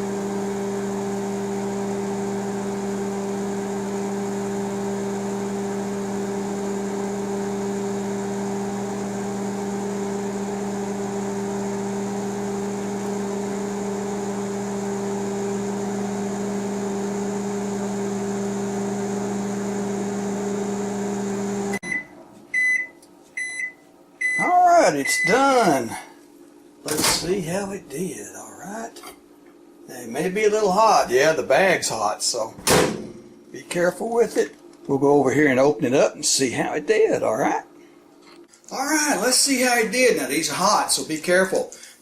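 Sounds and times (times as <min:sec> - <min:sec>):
microwave oven humming: 0:00.0 - 0:25.8.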